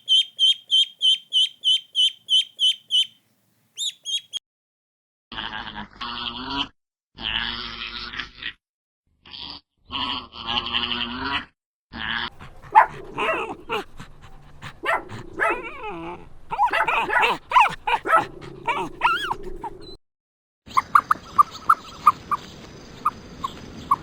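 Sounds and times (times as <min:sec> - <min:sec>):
buzzy animal call: 0:12.0 - 0:20.0
dog barking and whining: 0:12.3 - 0:20.0.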